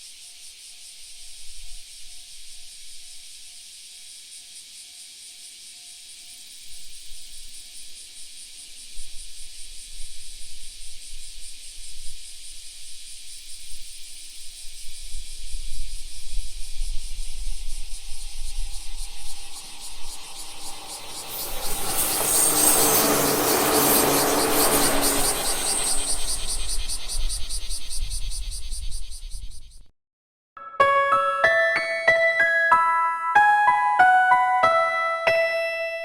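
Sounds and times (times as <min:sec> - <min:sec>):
steady high hiss: 0:09.5 - 0:28.7
wind buffeting microphone: 0:15.2 - 0:29.6.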